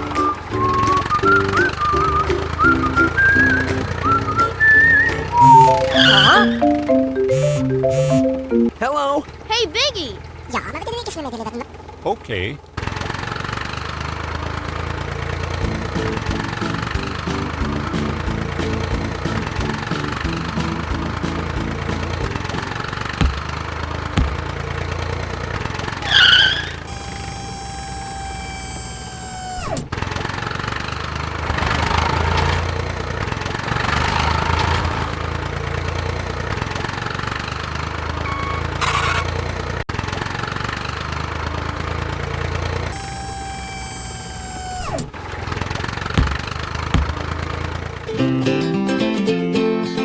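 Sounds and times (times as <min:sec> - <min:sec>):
high whine dropping in pitch: 0:05.3 - 0:08.7
small engine running: 0:12.8 - 0:48.1.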